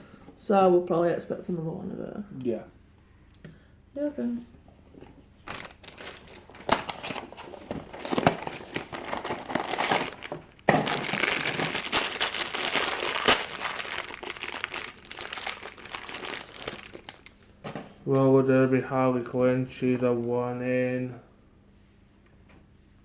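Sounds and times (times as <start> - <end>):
plastic packaging crinkling: 5.4 - 17.6.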